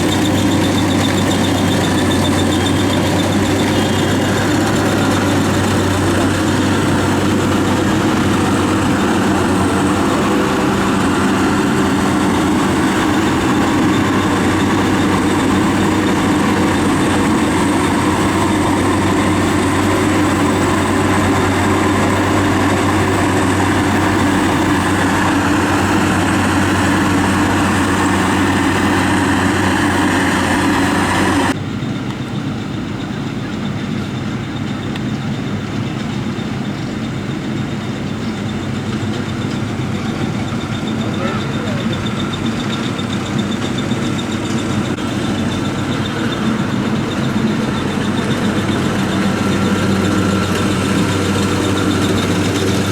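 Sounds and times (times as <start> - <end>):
clatter of machinery: 0.0 - 52.9
harvester engine running: 0.0 - 52.9.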